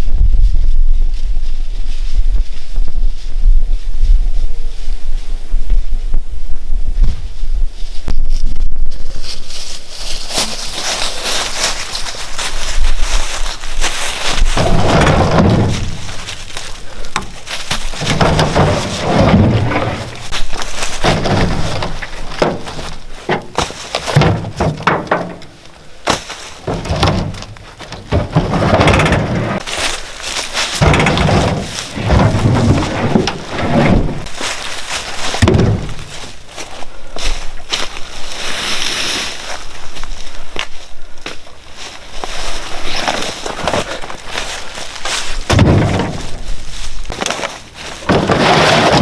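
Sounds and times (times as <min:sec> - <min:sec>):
firewood logs thudding: 0:11.3 - 0:37.9, 0:43.0 - 0:49.0.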